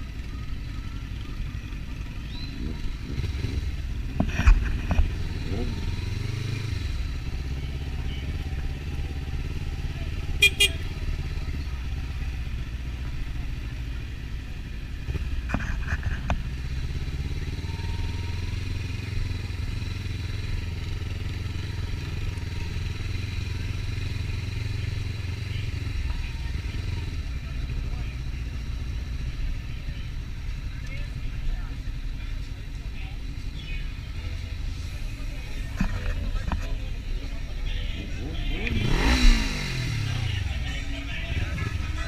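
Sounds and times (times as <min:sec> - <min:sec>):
motorcycle cruising: 0:00.0 - 0:42.0.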